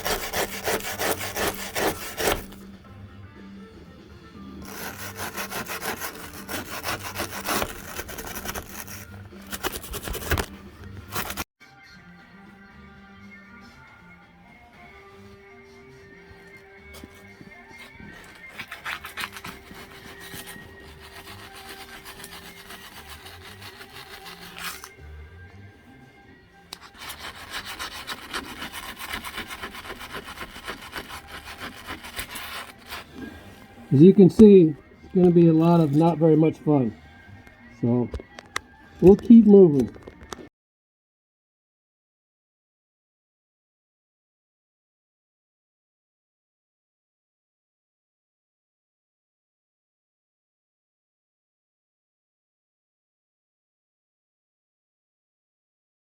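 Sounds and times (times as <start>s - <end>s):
hand tool scraping metal: 0.0s - 2.6s, 4.6s - 11.4s, 17.0s - 25.0s, 26.8s - 33.7s
scrubbing corroded aluminum: 17.0s - 25.0s, 26.7s - 33.2s.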